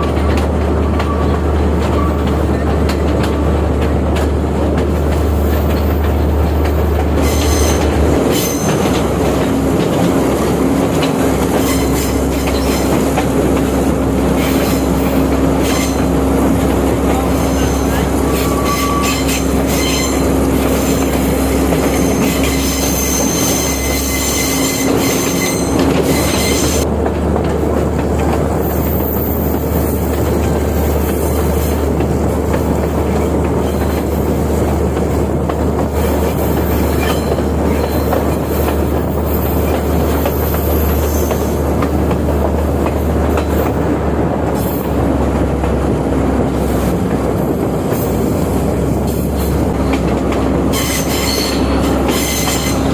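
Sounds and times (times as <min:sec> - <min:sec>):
train wheels rumbling on rail: 0:00.0 - 0:52.9.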